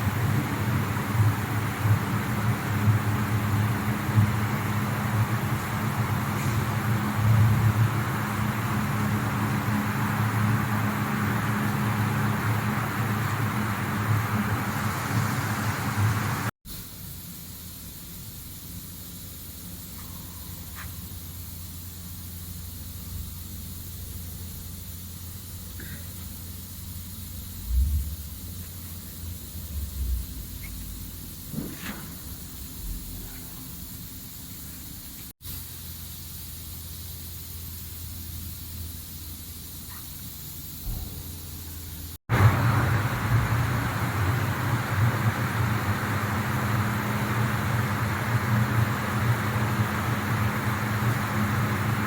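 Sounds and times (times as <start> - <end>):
steady hiss: 0.0 - 52.0
plastic granulator running: 42.3 - 52.0.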